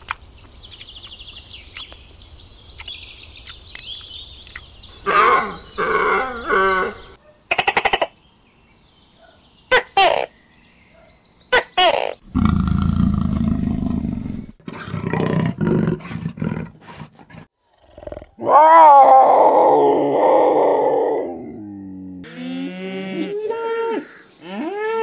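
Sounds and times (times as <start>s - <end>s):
big cat growling and snarling: 12.2s - 22.4s
big cat roaring: 12.3s - 22.4s.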